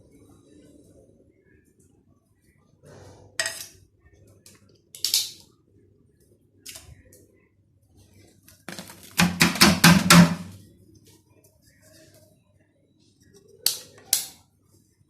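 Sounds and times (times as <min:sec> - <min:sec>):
household items clacking: 0:08.7 - 0:10.6
knocks and clatter: 0:08.7 - 0:10.6.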